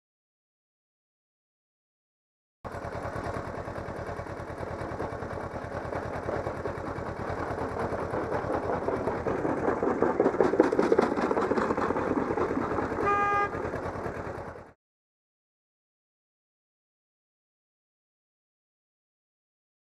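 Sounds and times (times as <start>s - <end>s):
vehicle engine and road noise: 2.7s - 14.8s
car horn blast: 13.0s - 13.6s.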